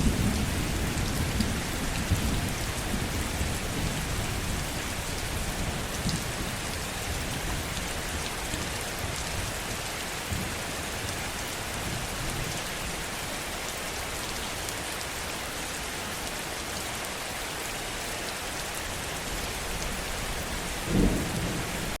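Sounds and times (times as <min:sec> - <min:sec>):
low thunder rumble: 0:00.0 - 0:08.4, 0:19.9 - 0:22.0
heavy rainfall: 0:00.0 - 0:22.0.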